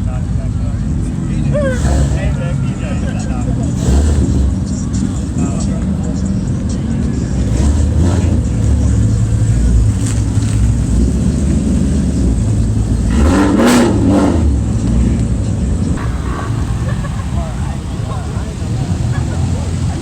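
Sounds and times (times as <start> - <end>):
car engines and exhausts running: 0.0 - 20.0.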